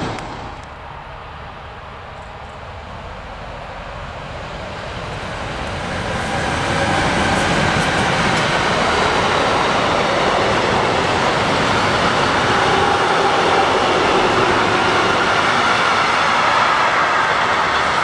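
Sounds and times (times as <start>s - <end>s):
freight train passing: 0.0s - 18.0s.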